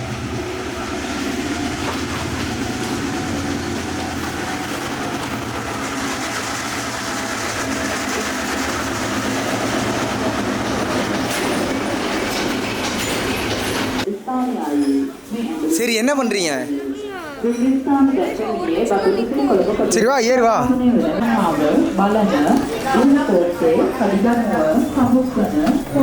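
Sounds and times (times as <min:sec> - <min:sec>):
diesel locomotive engine humming: 0:00.0 - 0:14.1, 0:15.2 - 0:26.0
train wheels clattering on rails: 0:00.0 - 0:14.1.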